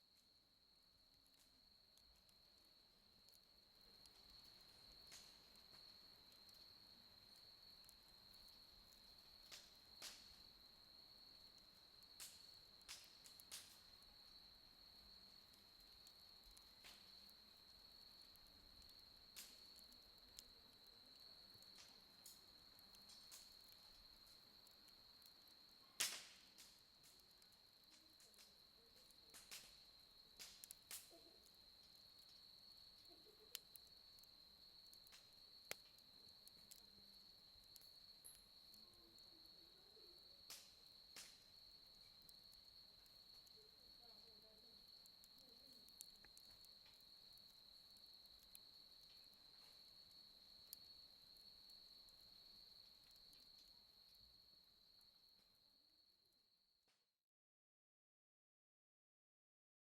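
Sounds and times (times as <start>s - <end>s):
burning firewood cracking and popping: 0.1s - 55.5s
crickets trilling: 1.3s - 56.1s.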